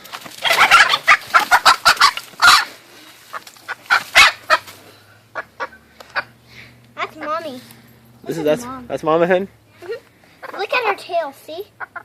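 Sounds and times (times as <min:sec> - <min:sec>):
hen squawking: 0:00.4 - 0:09.0, 0:11.7 - 0:12.0.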